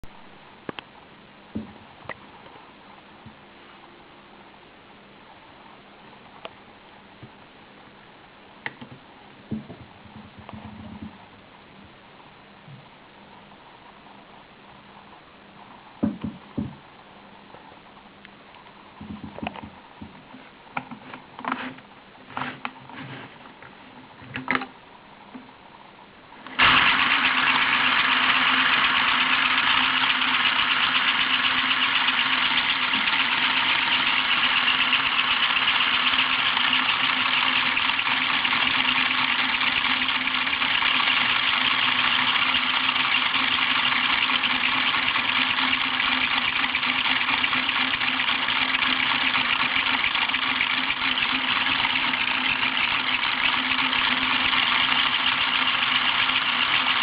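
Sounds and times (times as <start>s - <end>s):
toy motor engine whirring: 26.6s - 57.0s.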